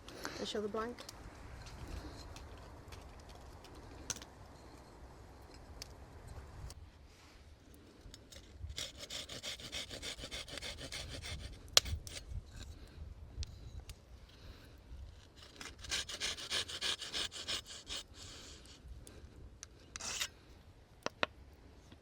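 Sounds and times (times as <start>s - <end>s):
hand tool rasping wood: 8.7s - 12.2s, 15.4s - 18.6s, 20.0s - 20.3s.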